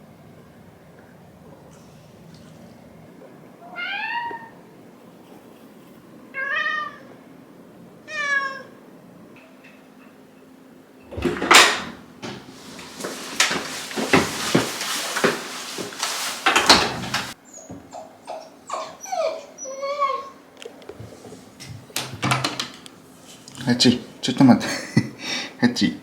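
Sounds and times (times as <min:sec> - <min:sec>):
cat meowing: 0:03.6 - 0:04.7, 0:06.4 - 0:07.2, 0:08.0 - 0:08.8
rustling: 0:11.1 - 0:17.4.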